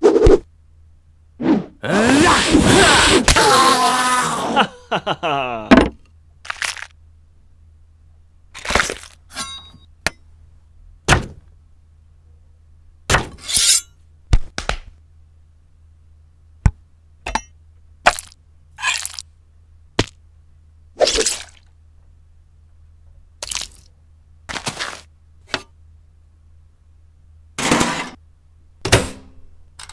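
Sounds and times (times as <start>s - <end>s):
crunchy rustles: 6.4s - 7.0s.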